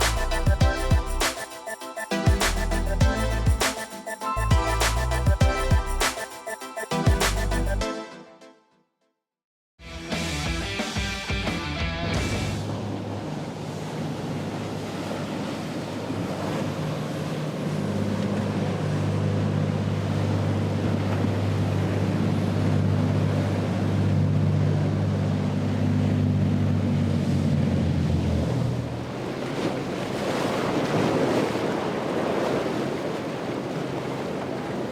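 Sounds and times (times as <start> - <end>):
surf: 0.0 - 7.8, 9.9 - 34.9
boat motor droning: 12.1 - 34.9.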